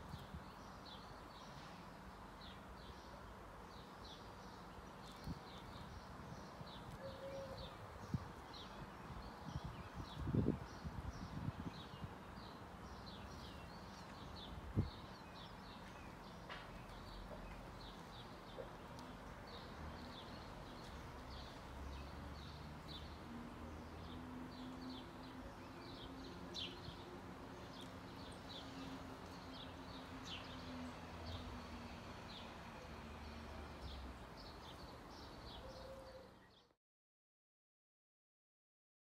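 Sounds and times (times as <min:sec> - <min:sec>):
garden birds chirping: 0:00.0 - 0:36.8.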